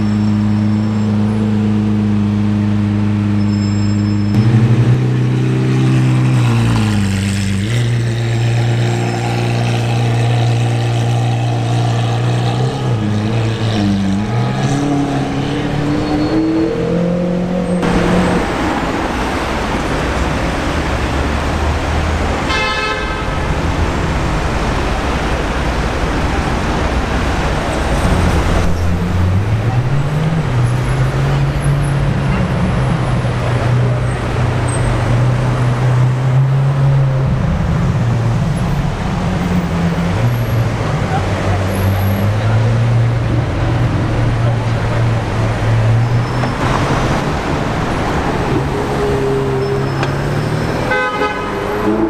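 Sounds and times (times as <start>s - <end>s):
traffic noise: 0.0s - 52.0s
car horn toot: 22.5s - 23.4s, 50.7s - 52.0s.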